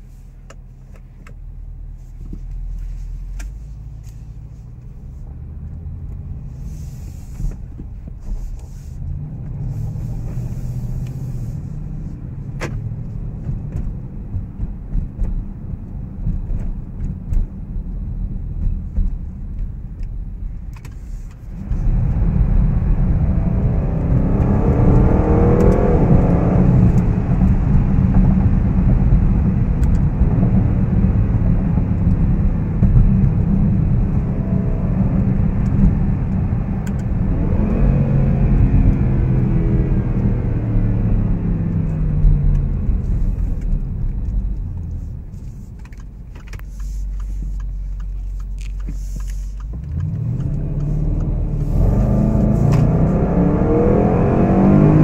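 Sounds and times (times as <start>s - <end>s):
car engine accelerating hard: 3.3s - 17.4s, 21.2s - 45.9s, 46.8s - 55.0s.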